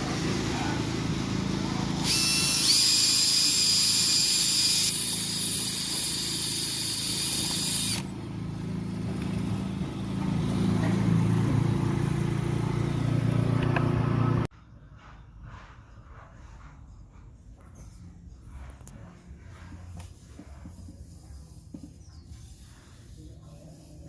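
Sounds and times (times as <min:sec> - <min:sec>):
low motor hum: 0:00.0 - 0:23.8
power tool whining: 0:01.1 - 0:08.2.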